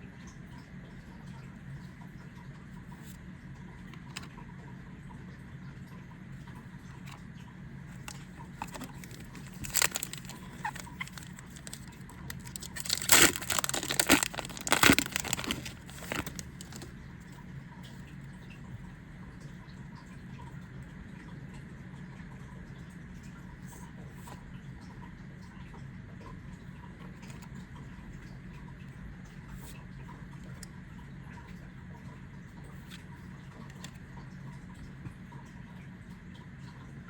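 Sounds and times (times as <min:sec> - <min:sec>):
foil wrapper crinkling: 0:08.0 - 0:16.9.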